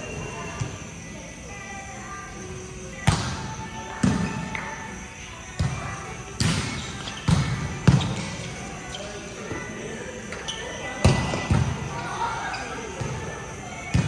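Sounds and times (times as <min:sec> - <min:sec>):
ball thudding on indoor court: 0:03.0 - 0:04.7, 0:05.6 - 0:08.7, 0:11.0 - 0:11.9.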